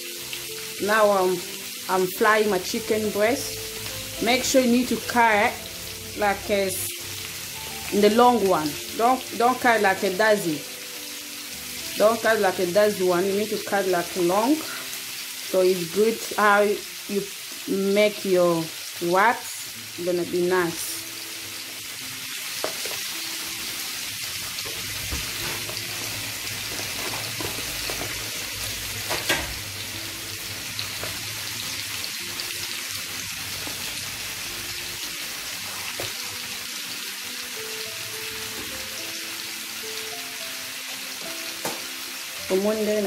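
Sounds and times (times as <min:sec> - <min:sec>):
chicken sizzling in a frying pan: 0:00.0 - 0:43.0.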